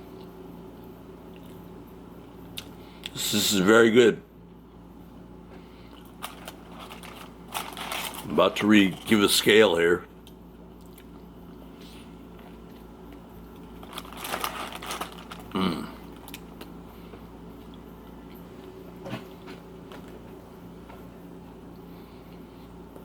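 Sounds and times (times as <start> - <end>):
chewing and crunching sandwich: 1.2 - 3.2, 5.5 - 9.5, 10.1 - 21.1
person humming briefly: 15.5 - 16.0.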